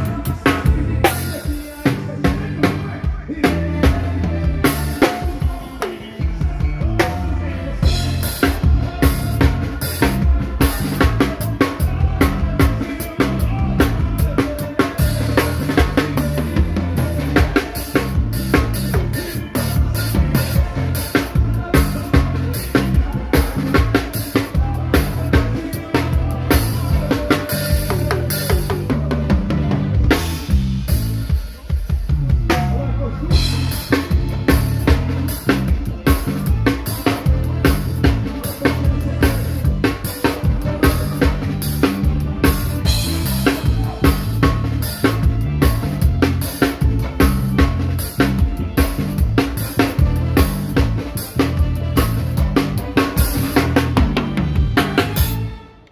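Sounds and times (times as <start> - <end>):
steady bass notes: 0.0 - 5.5, 6.4 - 31.4, 32.1 - 55.9
drum kit kick and snare: 0.0 - 55.6
live band playing instrumental: 0.0 - 55.9
high melodic instrument: 32.5 - 55.9.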